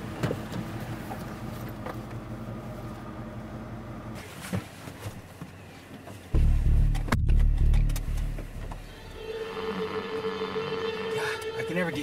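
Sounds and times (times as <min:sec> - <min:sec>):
truck engine running: 0:06.4 - 0:09.3.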